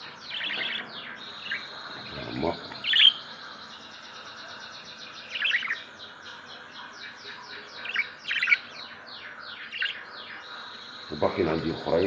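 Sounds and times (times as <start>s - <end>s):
cage birds chirping: 0.0s - 12.0s.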